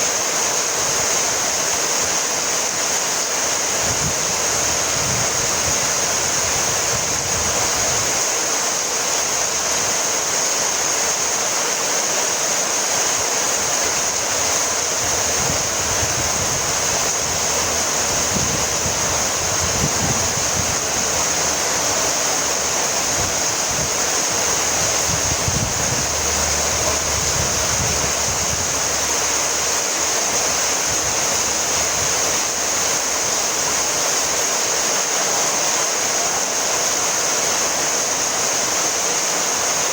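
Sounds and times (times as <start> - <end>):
heavy rain falling: 0.0 - 39.9
low gusty rumbles: 13.7 - 33.2.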